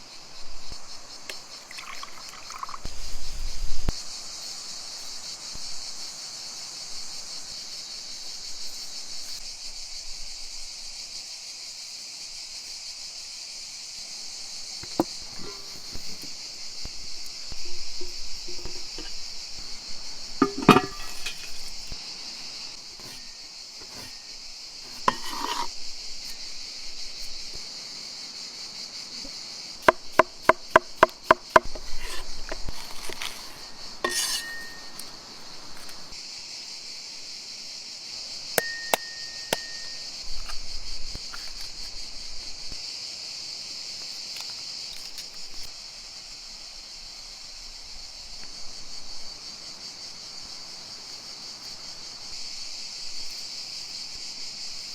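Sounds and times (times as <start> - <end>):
insects chorus: 0.0 - 54.9
clinks and knocks: 20.4 - 21.8, 34.1 - 35.1.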